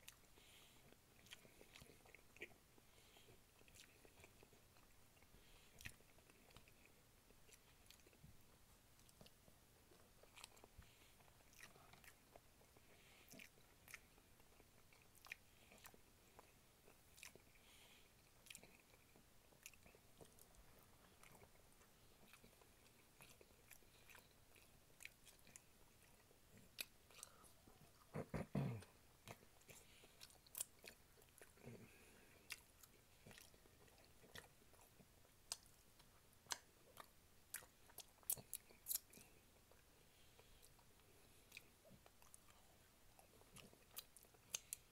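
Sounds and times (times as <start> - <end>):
person chewing meat: 0.0 - 44.9
lip smacks and clicks: 35.4 - 39.3.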